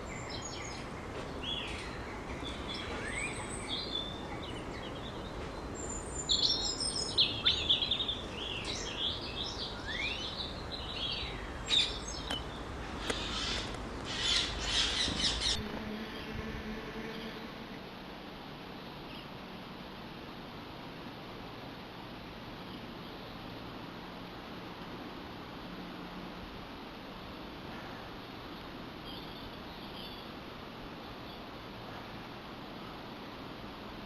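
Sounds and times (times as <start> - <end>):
small birds chirping and singing: 0.0 - 17.4.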